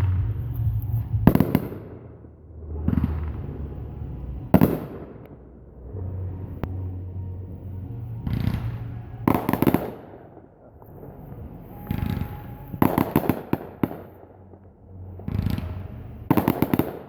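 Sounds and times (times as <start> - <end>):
firework shells booming: 0.0 - 3.9, 8.2 - 17.0
firework crackling: 0.0 - 6.8, 8.3 - 17.0.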